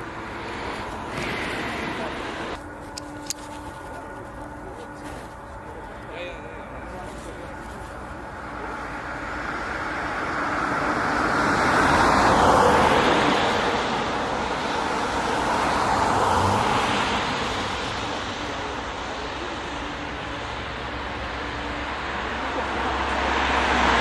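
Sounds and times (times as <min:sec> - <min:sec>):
jet airliner engine rush: 0:00.0 - 0:24.0.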